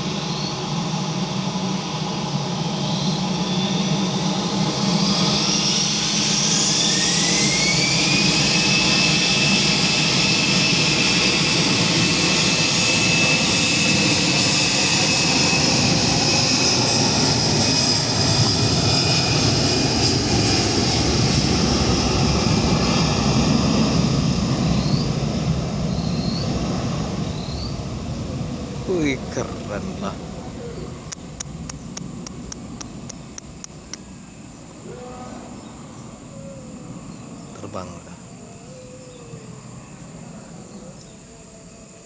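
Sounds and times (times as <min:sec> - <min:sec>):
jet engine whine: 0:00.0 - 0:42.0
rush of jet engine noise: 0:00.0 - 0:42.0.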